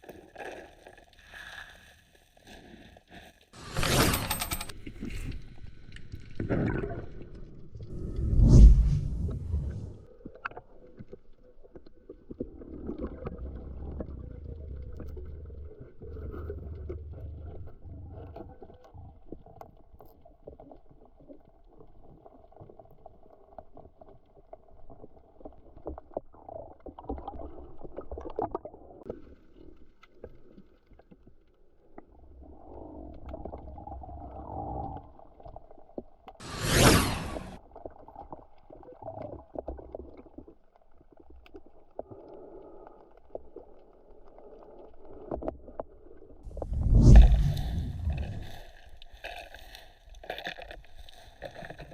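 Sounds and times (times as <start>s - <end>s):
underwater swirl of water: 3.6s - 10.1s, 36.4s - 37.7s, 44.4s - 51.9s
clicks and crackles: 37.5s - 51.9s.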